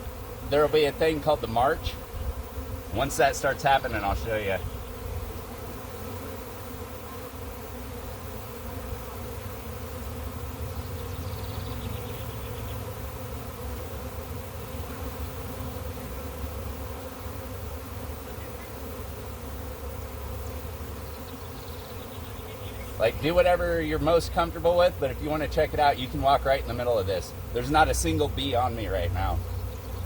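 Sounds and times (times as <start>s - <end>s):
bee swarm buzzing: 0.0s - 30.0s.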